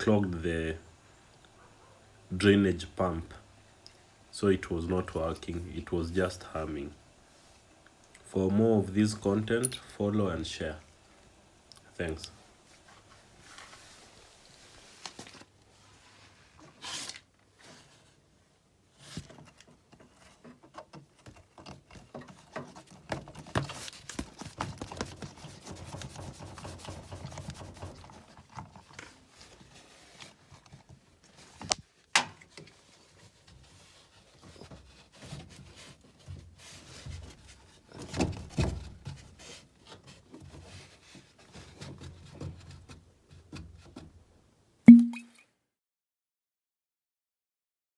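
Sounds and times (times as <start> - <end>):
rubbing and scraping handling noises: 12.0 - 44.2.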